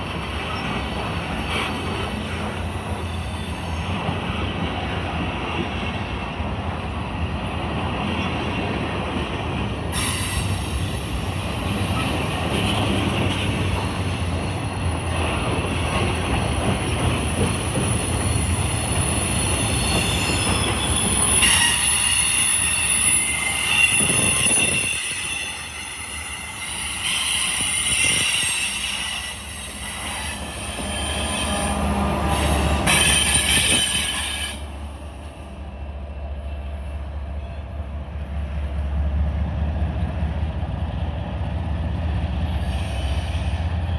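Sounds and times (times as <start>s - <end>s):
train wheel squeal: 0.0s - 4.7s, 6.8s - 35.7s, 42.5s - 43.9s
freight train rumbling: 0.0s - 43.9s.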